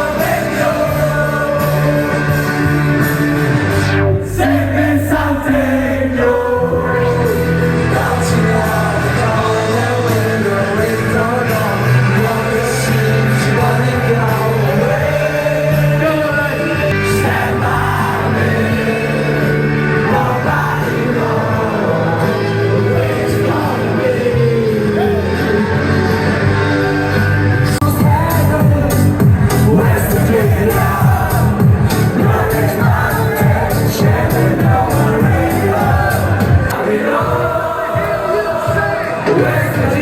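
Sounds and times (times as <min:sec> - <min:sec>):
bass guitar: 0:00.0 - 0:36.8
person singing: 0:27.6 - 0:40.0.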